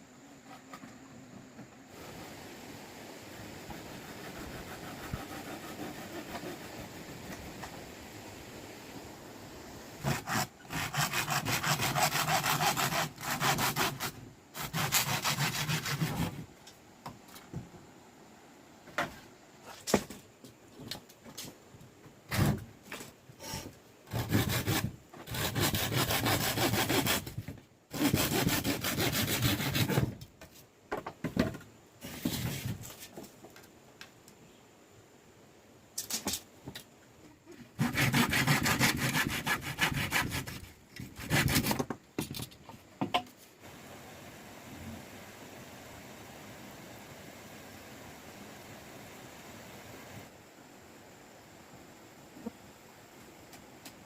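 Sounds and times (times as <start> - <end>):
sawing wood: 3.8 - 7.4, 10.0 - 16.4, 23.4 - 30.2, 37.8 - 41.9.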